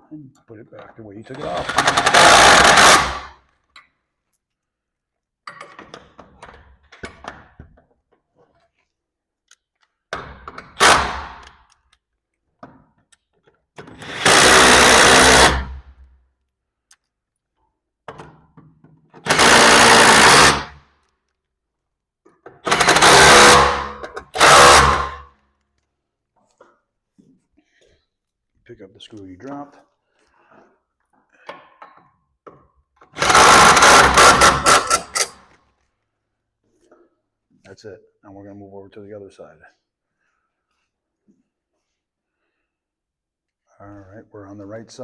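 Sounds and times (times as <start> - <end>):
power drill driving screws: 1.3 - 3.4, 10.8 - 11.5, 13.8 - 15.8, 19.2 - 20.8, 22.6 - 25.2, 33.2 - 35.5.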